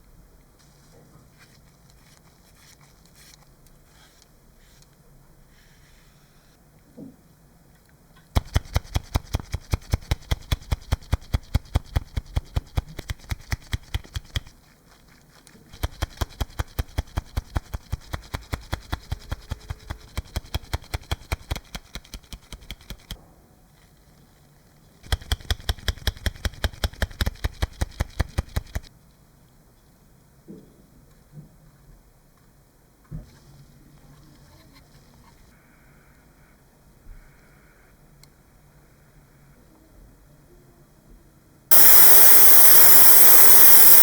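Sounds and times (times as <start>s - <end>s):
faint hum: 41.7s - 44.0s.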